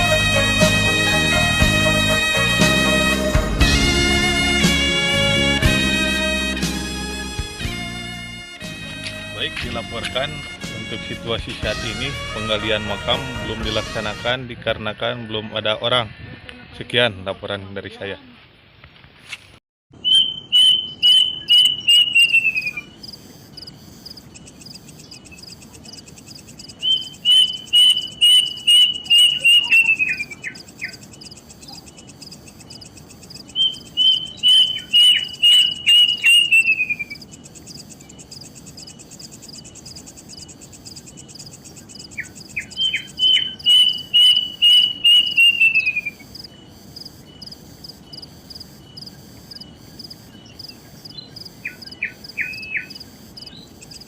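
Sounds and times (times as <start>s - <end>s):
bird whistling descending notes: 20.0s - 22.9s, 26.7s - 31.1s, 33.4s - 37.3s, 42.2s - 46.3s
high insect trill: 21.2s - 54.0s.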